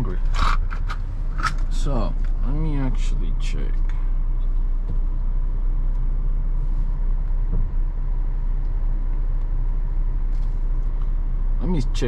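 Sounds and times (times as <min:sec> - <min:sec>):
car cabin rumble: 0:00.0 - 0:12.0
faint steady whine: 0:00.0 - 0:12.0.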